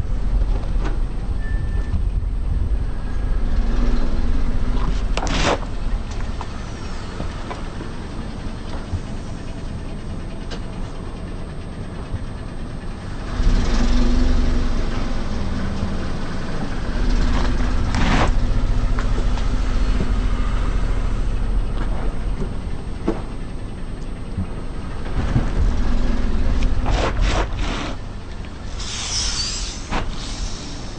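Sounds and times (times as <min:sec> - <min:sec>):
car engine running: 0:00.0 - 0:30.9
tyres rolling slowly: 0:00.0 - 0:30.9
objects cracking under tyres: 0:04.8 - 0:06.6.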